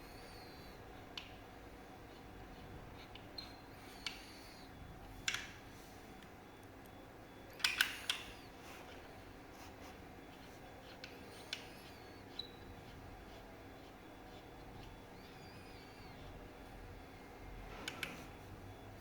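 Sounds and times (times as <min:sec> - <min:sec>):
faint squeaks: 0:08.2 - 0:19.0.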